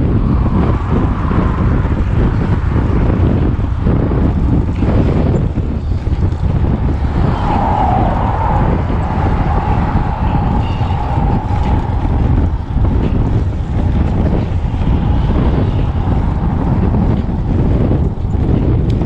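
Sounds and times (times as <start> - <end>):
steady high whine: 0.0 - 19.0
wind buffeting microphone: 0.0 - 19.0.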